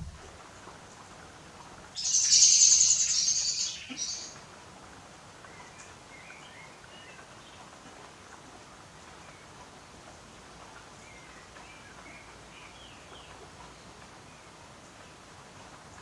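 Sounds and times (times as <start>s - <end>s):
bird high rapid trill: 2.0s - 4.4s
faint bird chirps: 2.0s - 4.4s.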